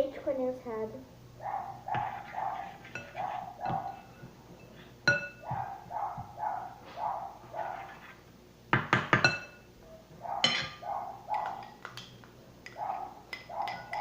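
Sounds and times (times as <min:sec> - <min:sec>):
spoon scraping a bowl: 0:01.9 - 0:05.5, 0:07.4 - 0:08.2
metal spoon clinking on bowl: 0:02.9 - 0:05.4, 0:09.1 - 0:09.7, 0:10.4 - 0:11.8, 0:12.6 - 0:14.0.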